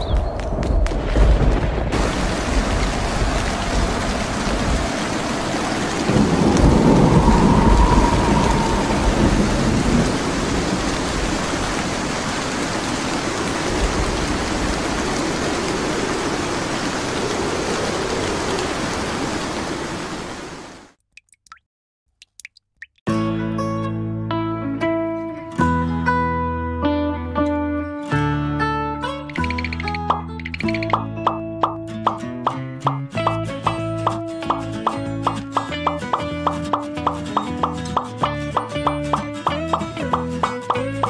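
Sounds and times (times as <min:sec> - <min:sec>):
low rumble of thunder: 0:00.1 - 0:11.8
heavy rain: 0:00.1 - 0:21.0.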